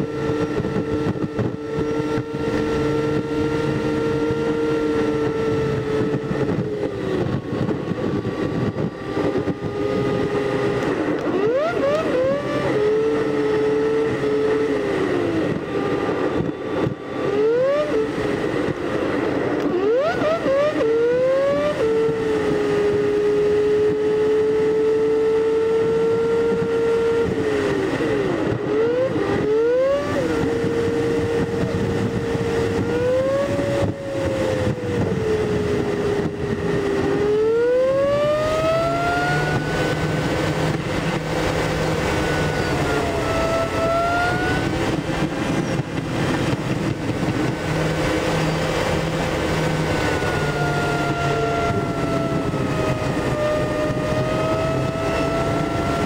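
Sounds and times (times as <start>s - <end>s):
road and wind noise: 0.0s - 56.0s
sped up car engine drone: 0.0s - 56.0s.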